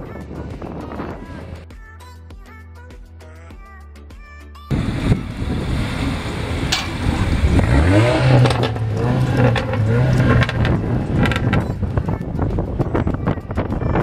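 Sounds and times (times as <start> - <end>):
wind noise on microphone: 0.0 - 1.7, 4.7 - 14.0
car engines accelerating: 4.7 - 12.4.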